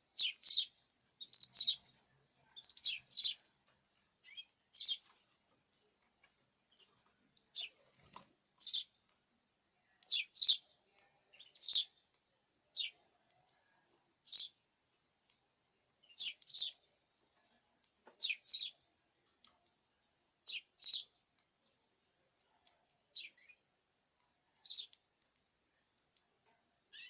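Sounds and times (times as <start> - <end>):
canaries chirping: 0.2 - 3.5, 4.2 - 5.3, 8.6 - 9.0, 10.0 - 10.7, 11.3 - 12.0, 14.2 - 14.5, 16.0 - 16.9, 18.2 - 18.8, 20.5 - 21.1, 24.6 - 25.0.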